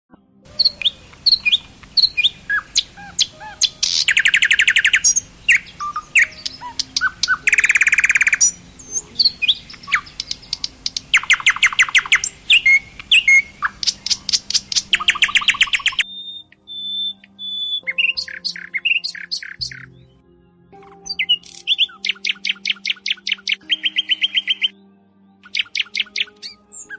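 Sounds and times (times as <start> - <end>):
fast repeated bird trilling: 0.5 - 19.9, 20.8 - 24.7, 25.5 - 26.9
thin held whistle: 0.5 - 19.9
small birds chirping: 0.5 - 20.2, 20.8 - 26.9.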